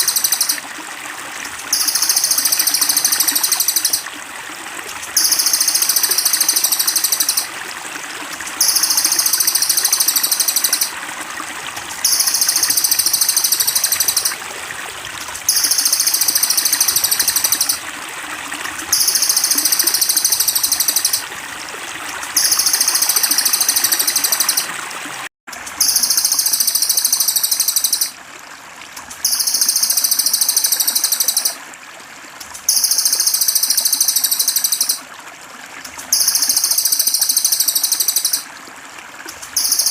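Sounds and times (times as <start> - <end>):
trickling water: 0.0 - 39.9
high fast trilling call: 1.7 - 4.0, 5.2 - 7.5, 8.6 - 10.9, 12.0 - 14.3, 15.5 - 17.8, 18.9 - 21.2, 25.8 - 28.2, 32.7 - 35.0.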